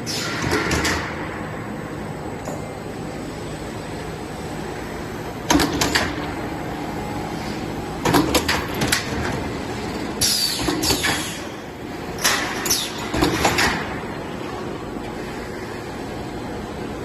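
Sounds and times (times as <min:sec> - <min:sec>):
roll forming machine humming: 0:00.0 - 0:17.0.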